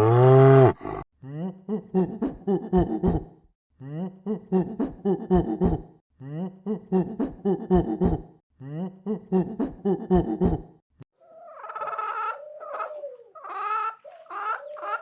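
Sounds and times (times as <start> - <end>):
animal pulsed cries: 11.2 - 15.0.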